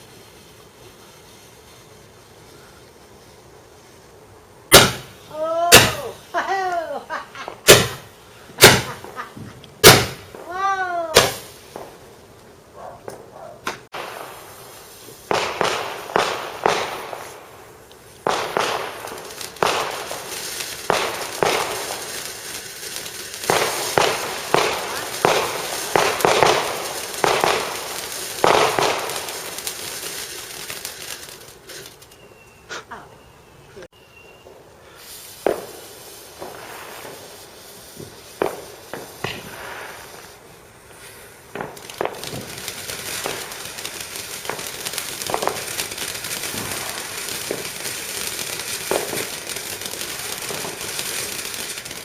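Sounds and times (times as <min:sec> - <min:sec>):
fireworks bangs: 0:00.0 - 0:32.4, 0:33.9 - 0:52.0.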